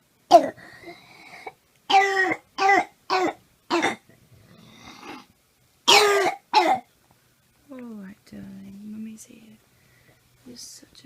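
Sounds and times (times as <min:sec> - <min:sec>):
child barking cough: 0:01.9 - 0:04.0, 0:05.9 - 0:06.9
noisy breath in: 0:09.7 - 0:10.4.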